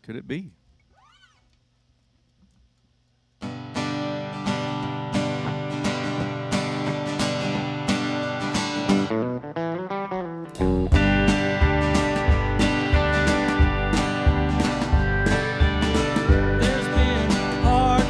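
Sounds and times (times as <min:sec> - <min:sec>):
strummed guitar chords: 0:03.4 - 0:18.0
guitar single notes: 0:03.5 - 0:18.0
band playing: 0:10.5 - 0:18.0.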